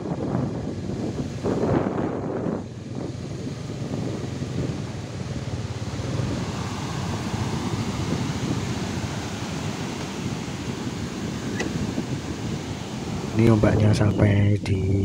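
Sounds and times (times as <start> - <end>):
wind buffeting microphone: 0.0 - 15.0
surf breaking on beach: 5.6 - 13.6.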